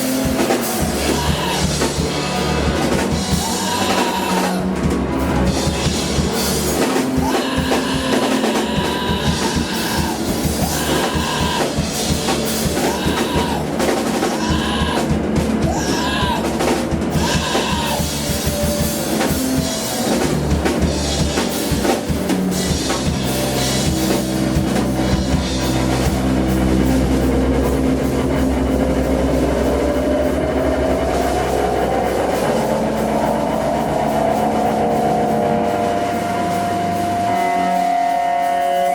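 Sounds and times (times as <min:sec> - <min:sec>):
drum kit playing: 0:00.0 - 0:38.9
live band music: 0:00.0 - 0:38.9
low bass: 0:07.8 - 0:38.2.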